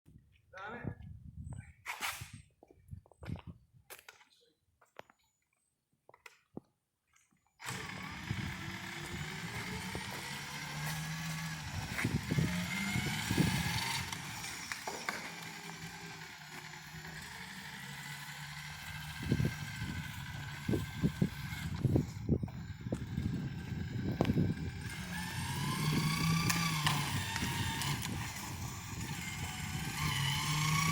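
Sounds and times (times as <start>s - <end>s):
aircraft tug engine running: 7.6s - 30.9s.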